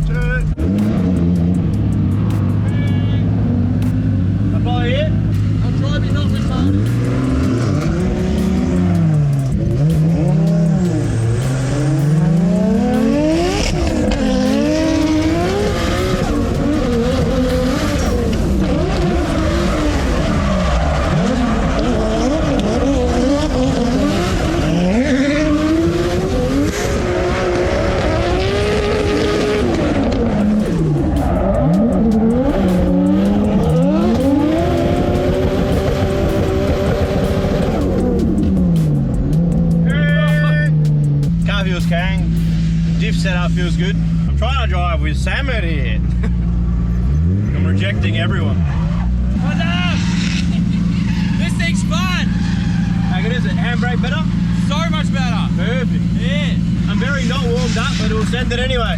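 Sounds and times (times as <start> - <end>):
car engine revving: 0.0 - 58.9
tyres squealing: 47.3 - 58.9.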